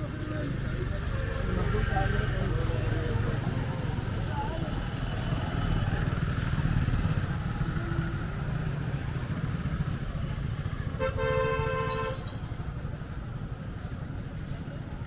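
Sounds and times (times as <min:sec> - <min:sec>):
motorcycle engines running: 0:00.0 - 0:15.0
street traffic: 0:00.0 - 0:15.0
vehicle horn: 0:10.9 - 0:12.4.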